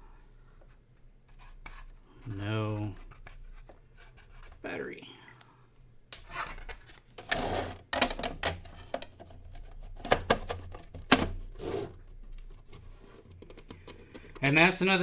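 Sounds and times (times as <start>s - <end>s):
plastic case clicking and knocking: 6.1s - 14.7s
plastic scraping slide: 6.2s - 14.6s.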